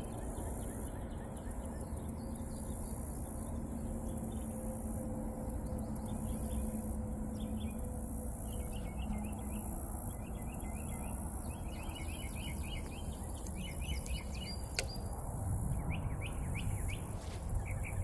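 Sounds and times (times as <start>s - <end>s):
steady low rumble: 3.5s - 18.0s
songbird falling chirps: 11.6s - 15.2s.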